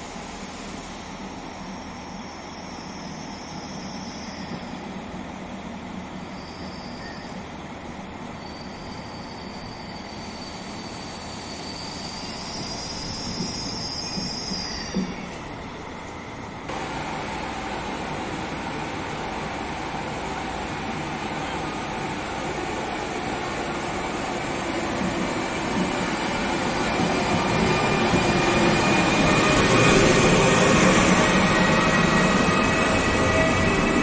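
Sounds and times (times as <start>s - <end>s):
train rumbling and braking: 0.0s - 34.0s
high-pitched wheel squeal: 6.3s - 7.4s, 8.4s - 15.4s.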